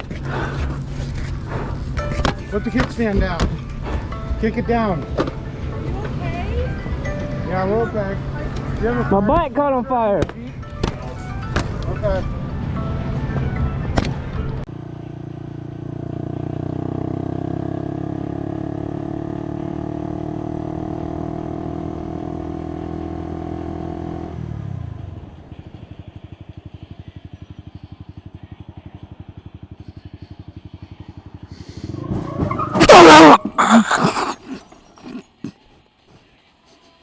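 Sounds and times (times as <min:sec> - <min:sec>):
motorcycle engine running: 0:14.2 - 0:32.6.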